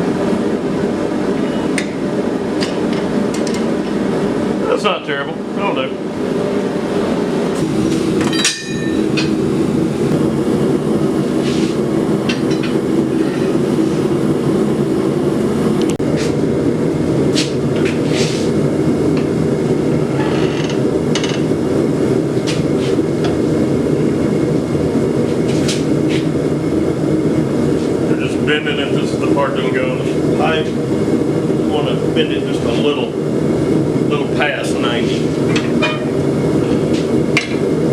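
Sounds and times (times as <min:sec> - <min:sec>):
hammer striking steel on anvil: 0:08.2 - 0:09.4.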